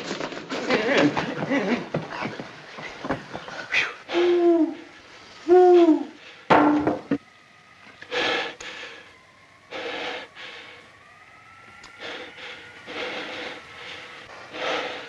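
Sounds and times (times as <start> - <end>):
owl hooting: 3.6 - 6.5.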